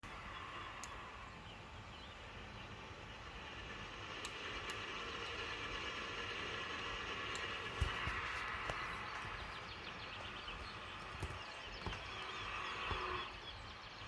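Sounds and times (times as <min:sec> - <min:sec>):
freight train rumbling: 0:00.0 - 0:14.0
faint clicks: 0:00.6 - 0:01.2, 0:03.2 - 0:13.3.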